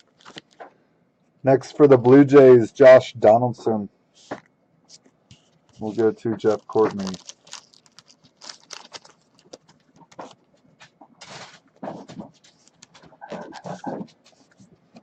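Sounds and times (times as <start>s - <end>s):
cards clicking and rustling: 0.0s - 0.6s, 5.7s - 10.4s.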